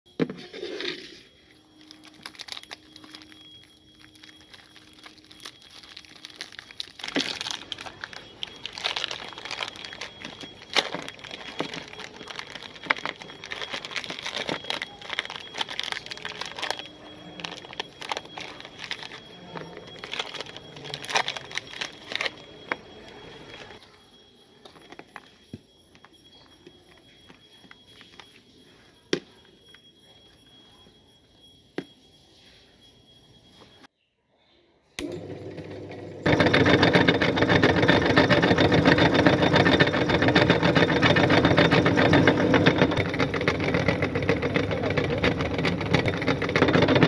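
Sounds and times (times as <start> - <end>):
plastic wrappers crinkling and tearing: 1.7 - 23.8.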